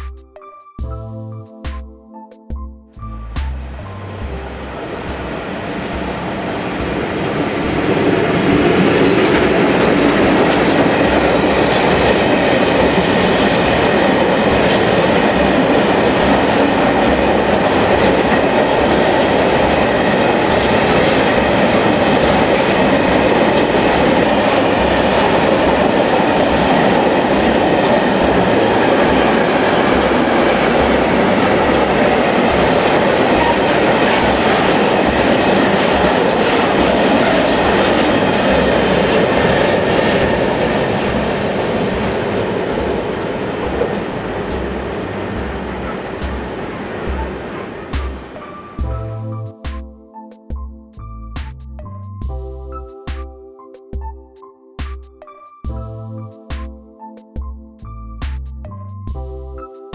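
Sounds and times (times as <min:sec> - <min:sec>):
freight train wheels rumbling on rails: 0:03.4 - 0:49.1.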